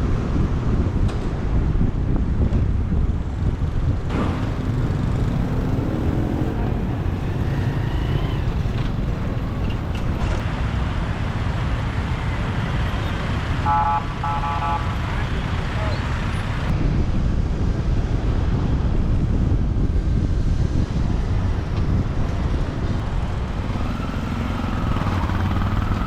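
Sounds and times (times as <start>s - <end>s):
vehicles passing: 0.0s - 26.0s
wind and road noise: 0.0s - 26.0s
vehicle horn beeping: 12.9s - 16.5s.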